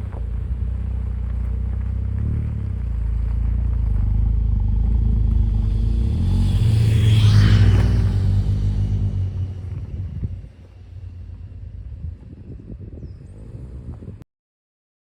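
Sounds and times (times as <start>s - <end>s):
car engine running: 0.0s - 14.2s
brief rushing noise: 5.4s - 10.5s.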